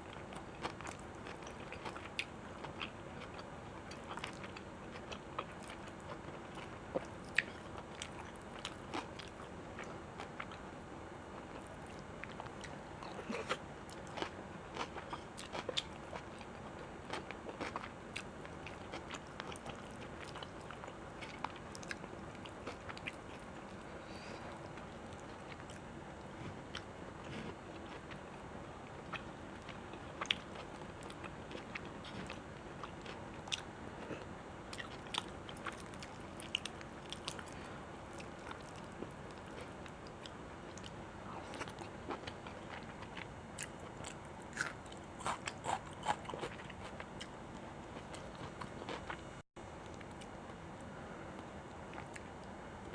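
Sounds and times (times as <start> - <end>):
steady low hiss: 0.0 - 52.9
chewing and biting food: 29.0 - 37.6, 38.2 - 49.2.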